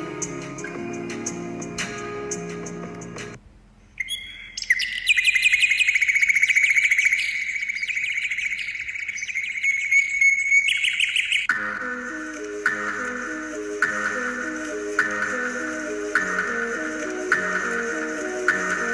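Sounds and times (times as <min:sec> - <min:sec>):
bird trilling: 0:04.0 - 0:18.9
high chirps: 0:04.0 - 0:18.9.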